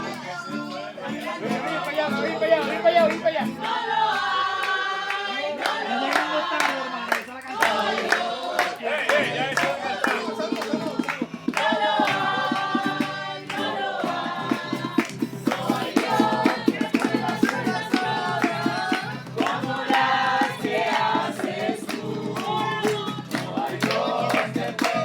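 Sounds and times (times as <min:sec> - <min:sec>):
group singing a worship song: 0:00.0 - 0:25.0
rhythmic accompaniment: 0:09.1 - 0:25.0.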